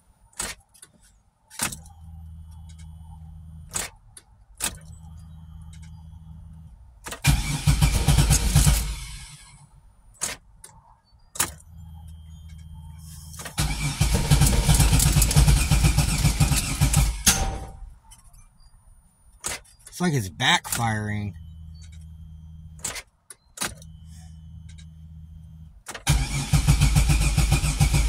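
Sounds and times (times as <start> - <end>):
car engine cranking: 0.3 - 18.4, 19.4 - 28.0.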